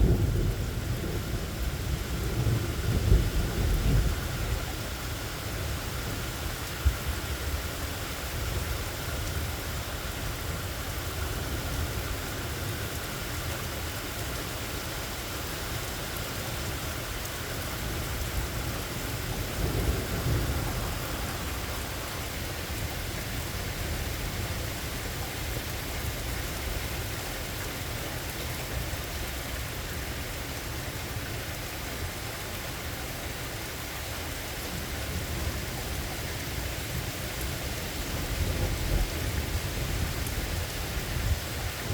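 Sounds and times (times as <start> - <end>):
low thunder rumbling: 0.0 - 4.9, 17.8 - 24.8, 34.7 - 41.9
steady rain falling: 0.0 - 41.9.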